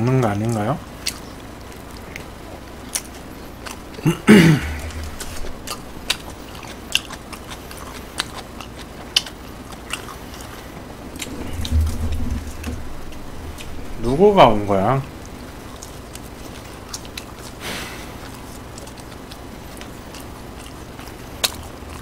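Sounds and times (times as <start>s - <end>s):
chewing burger: 0.0s - 14.1s, 15.0s - 22.0s
short hum: 4.4s - 6.1s, 10.5s - 15.7s.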